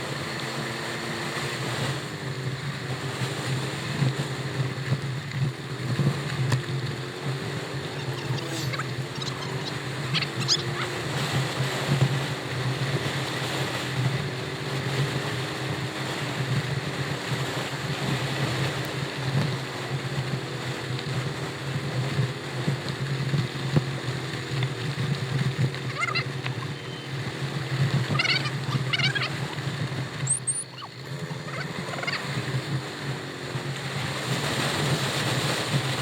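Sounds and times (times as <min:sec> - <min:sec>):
vehicle engine running: 0:00.0 - 0:36.0
wind and road noise: 0:00.0 - 0:36.0
short high chirps: 0:30.3 - 0:30.9.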